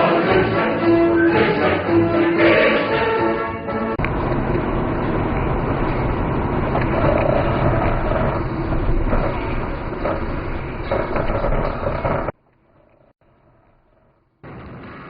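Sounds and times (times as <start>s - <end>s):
vehicle and road rumble: 3.6s - 15.0s.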